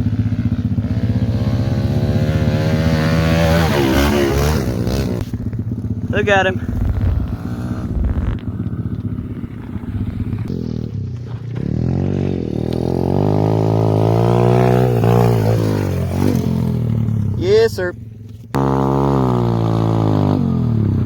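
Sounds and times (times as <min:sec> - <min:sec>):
pit bike engine revving: 0:00.0 - 0:17.9, 0:18.5 - 0:21.0.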